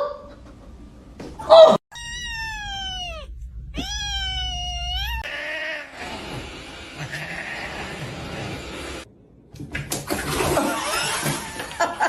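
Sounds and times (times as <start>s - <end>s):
cat meowing: 1.9s - 6.0s.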